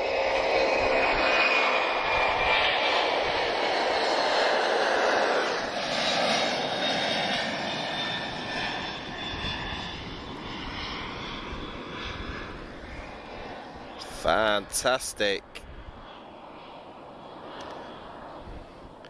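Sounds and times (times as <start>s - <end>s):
jet engines at takeoff thrust: 0.0s - 19.0s.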